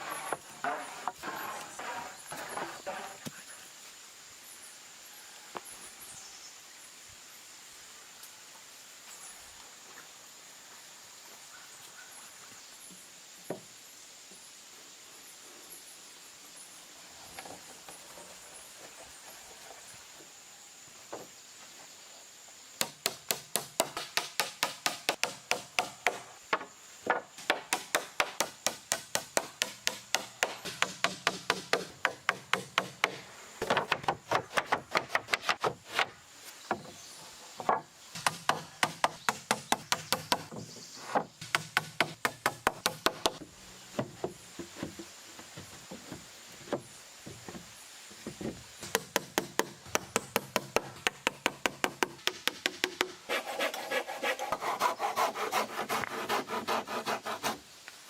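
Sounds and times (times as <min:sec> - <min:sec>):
tool striking wood: 0:22.8 - 0:36.1, 0:37.7 - 0:43.4, 0:48.8 - 0:53.7.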